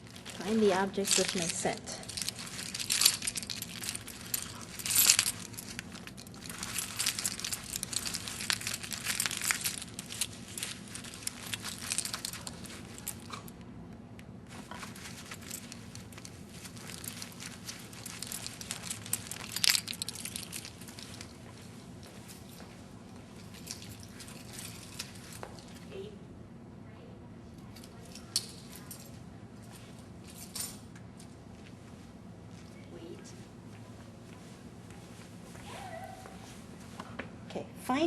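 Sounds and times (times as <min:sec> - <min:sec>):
small clicks of handled objects: 0:00.0 - 0:22.8, 0:27.7 - 0:31.3
rustling and crinkling: 0:00.0 - 0:26.0.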